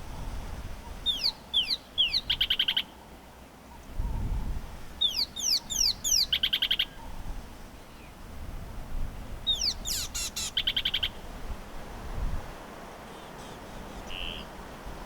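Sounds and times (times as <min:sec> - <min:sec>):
bird calling: 0:01.0 - 0:03.1, 0:05.0 - 0:07.2, 0:09.5 - 0:11.2, 0:13.0 - 0:15.0.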